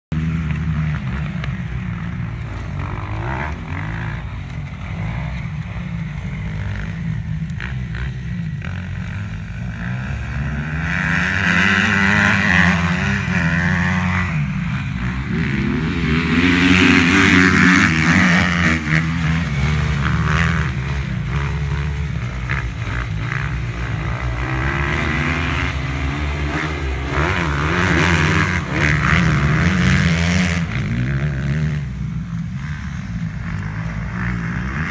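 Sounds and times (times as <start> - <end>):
motocross bike engines revving: 0.1 - 34.9.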